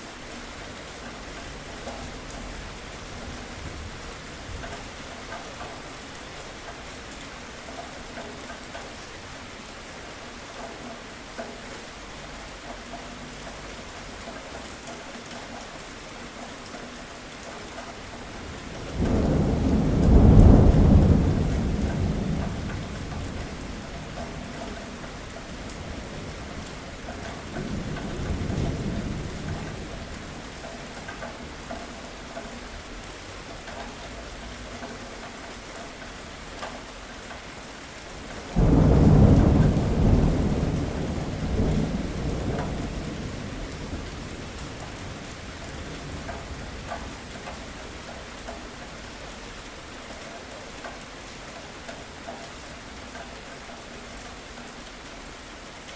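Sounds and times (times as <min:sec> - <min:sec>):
heavy rain falling: 0:00.0 - 0:55.9
thunder rolling: 0:18.6 - 0:24.4, 0:38.5 - 0:46.8.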